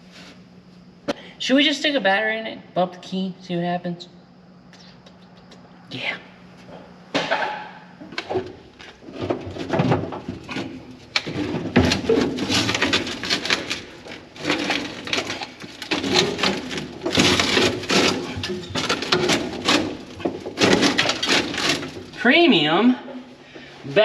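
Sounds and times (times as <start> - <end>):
heavy objects knocking and scraping: 7.2 - 22.2.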